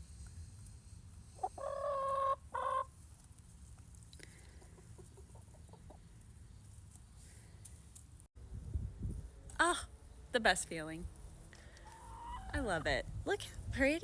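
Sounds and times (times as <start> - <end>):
hens calling: 1.4 - 3.0, 11.6 - 13.0
hens clucking softly: 1.4 - 3.0, 4.3 - 6.3, 11.7 - 12.8.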